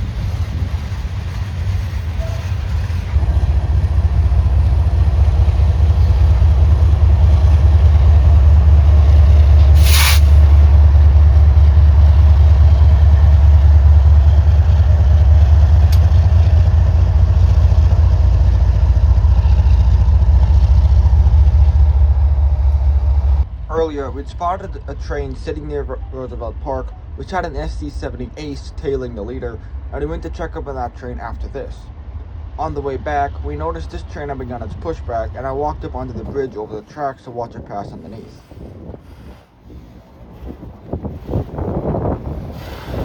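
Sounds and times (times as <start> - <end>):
diesel locomotive rumble: 0.0 - 43.0
short hiss: 9.7 - 10.7.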